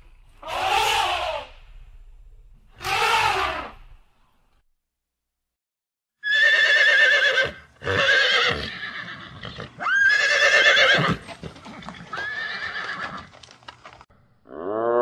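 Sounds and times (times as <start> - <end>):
horses neighing: 6.2 - 13.3.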